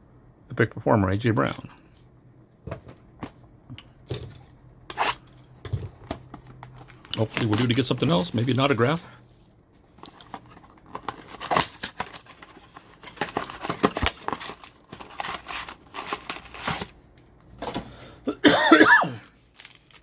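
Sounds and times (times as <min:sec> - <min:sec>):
cards clicking and rustling: 0:06.1 - 0:09.1, 0:10.0 - 0:16.9
foil wrappers crinkling and tearing: 0:06.7 - 0:17.6, 0:19.2 - 0:20.0.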